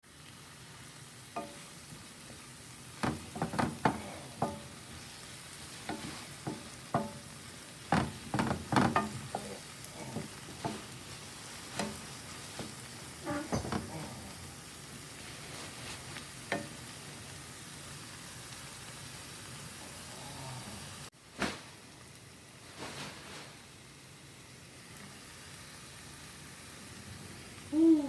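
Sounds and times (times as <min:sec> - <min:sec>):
greens sizzling in a pot: 0:00.0 - 0:28.0
utensil scraping a pot: 0:03.0 - 0:07.3, 0:07.9 - 0:14.1.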